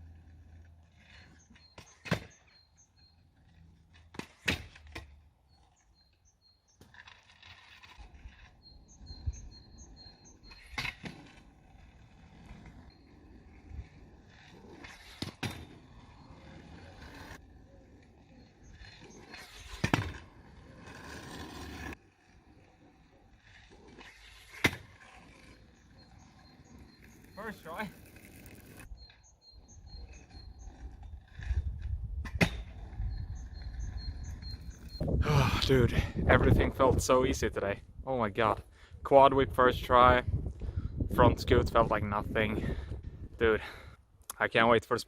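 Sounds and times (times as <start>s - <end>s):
scooter wheels rolling: 0.0s - 35.2s.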